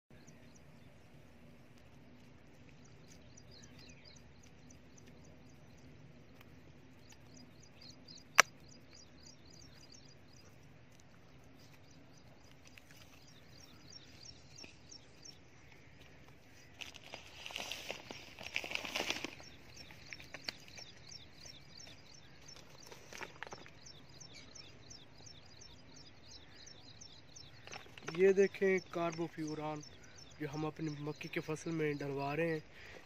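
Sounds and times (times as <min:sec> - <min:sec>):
small bird chirping: 0:00.1 - 0:32.9
sharp click: 0:08.3 - 0:08.8.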